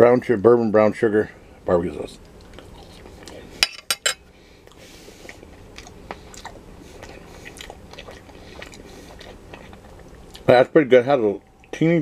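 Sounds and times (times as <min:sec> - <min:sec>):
person chewing food: 0:02.3 - 0:10.5.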